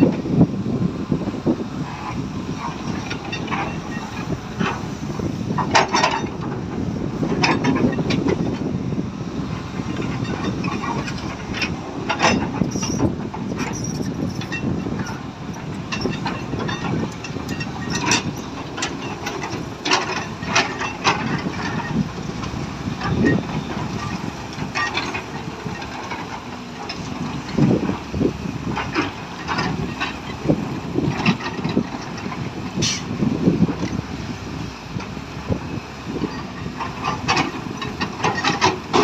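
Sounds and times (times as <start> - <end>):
diesel engine rumbling: 0.0 - 39.0
sharp metal clanks and knocks: 5.6 - 6.5, 10.0 - 22.0, 23.0 - 27.8, 36.2 - 39.0.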